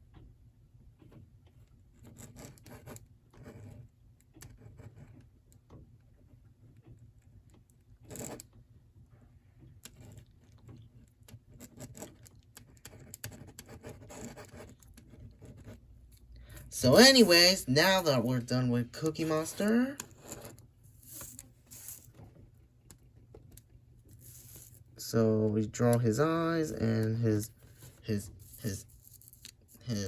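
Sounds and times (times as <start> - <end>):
drawing tool scratching on paper: 1.8 - 5.4, 8.0 - 8.5, 9.8 - 15.9, 19.0 - 23.1, 24.0 - 25.0, 26.8 - 30.0.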